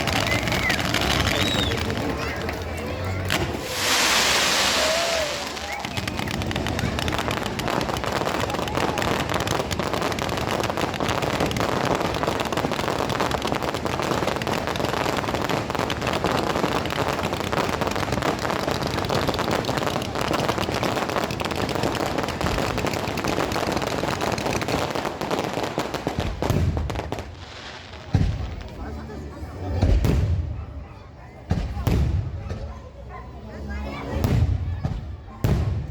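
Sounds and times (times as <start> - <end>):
firecrackers popping and banging: 0.0 - 28.8, 31.5 - 32.7.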